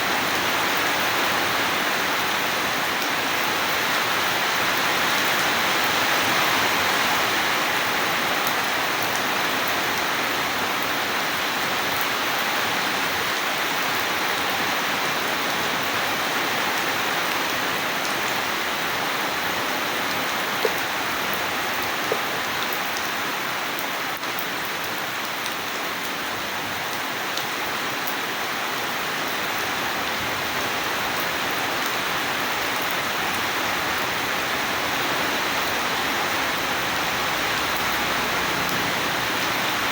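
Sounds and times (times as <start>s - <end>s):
heavy rainfall hissing: 33.2s - 39.9s.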